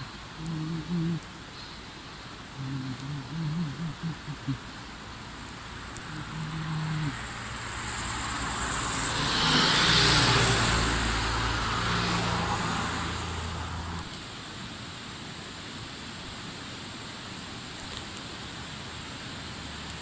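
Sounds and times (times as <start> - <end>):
passing vehicle engine hum: 5.6 - 14.2.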